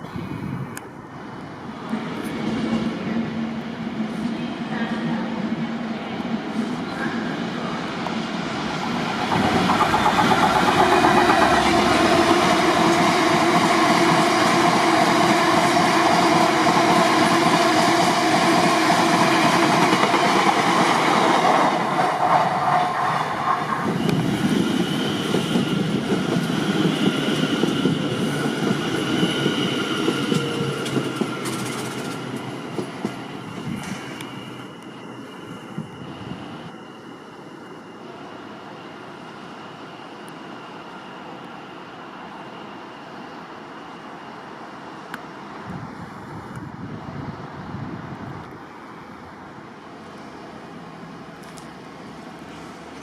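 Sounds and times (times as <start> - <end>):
train wheels on rails: 0.1 - 53.0
faint steady whines: 33.4 - 46.7.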